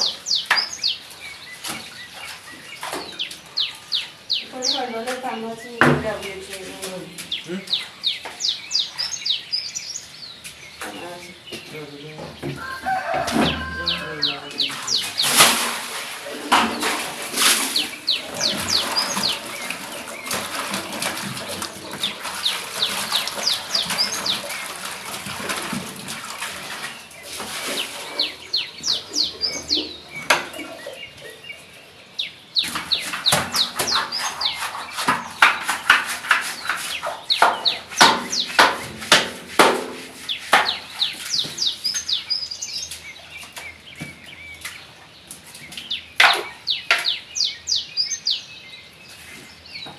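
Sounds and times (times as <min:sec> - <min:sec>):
birds chirping: 0:00.0 - 0:49.9
knocks and clatter: 0:14.9 - 0:26.8, 0:32.6 - 0:41.7.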